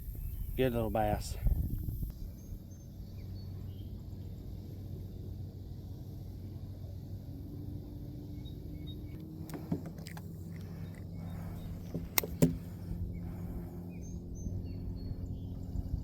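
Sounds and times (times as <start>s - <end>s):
low engine hum: 0.0s - 16.0s
faint bird chirps: 8.2s - 9.2s
sharp clicks: 9.2s - 12.7s.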